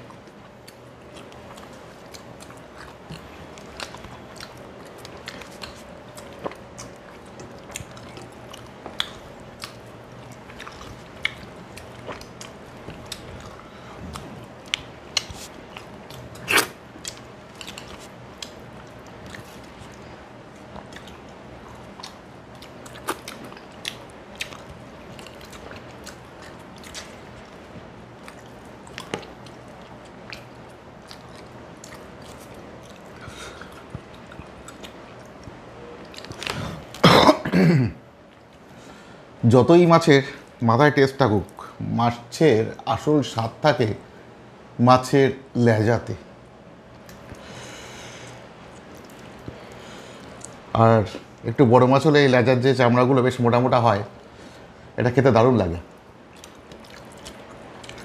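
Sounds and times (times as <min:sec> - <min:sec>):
person chewing with mouth sounds: 0:00.0 - 0:37.1, 0:47.0 - 0:51.2, 0:55.9 - 0:58.0
faint steady hum: 0:00.0 - 0:58.0.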